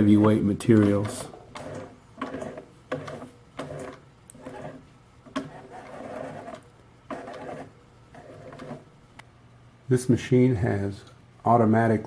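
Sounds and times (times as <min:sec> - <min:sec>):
sewing machine motor hum: 0:00.8 - 0:08.9.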